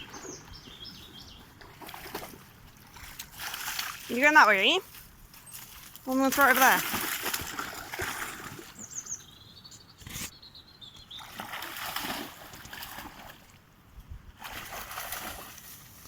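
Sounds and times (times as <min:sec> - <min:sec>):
bird chirping: 0:00.0 - 0:01.6, 0:08.7 - 0:11.4
dog splashing through water: 0:01.1 - 0:04.6, 0:05.6 - 0:08.8, 0:11.2 - 0:13.5, 0:14.4 - 0:16.0.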